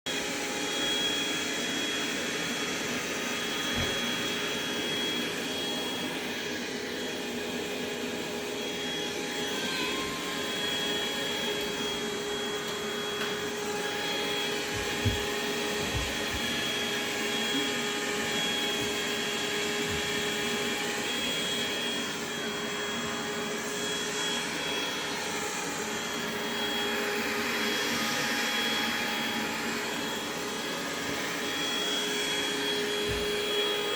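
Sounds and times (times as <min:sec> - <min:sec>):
robot vacuum cleaner running: 0:00.2 - 0:33.9.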